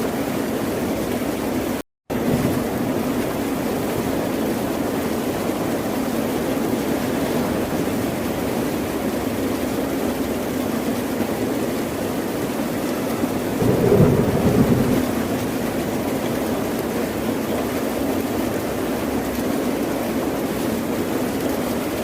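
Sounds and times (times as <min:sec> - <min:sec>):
ocean surf: 0:12.9 - 0:16.6.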